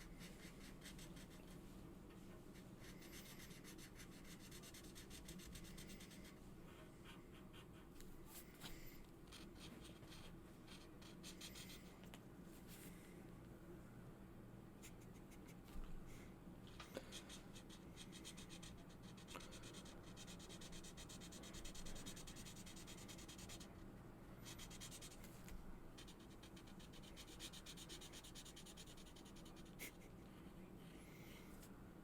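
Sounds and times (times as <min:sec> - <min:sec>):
marker scratching on paper: 0:00.0 - 0:01.6, 0:02.8 - 0:08.0, 0:09.3 - 0:11.9, 0:17.0 - 0:23.7, 0:24.4 - 0:25.3, 0:26.0 - 0:30.0.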